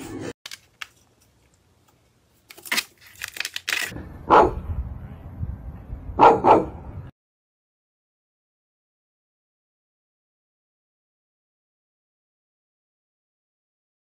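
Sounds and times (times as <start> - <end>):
dog barking: 4.3 - 4.7, 6.2 - 6.8.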